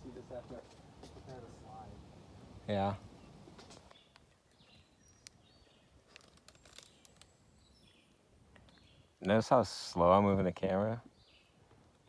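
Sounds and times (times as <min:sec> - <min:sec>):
faint bird chirps: 0:03.0 - 0:09.2
soft clicks and crinkles: 0:03.5 - 0:09.4.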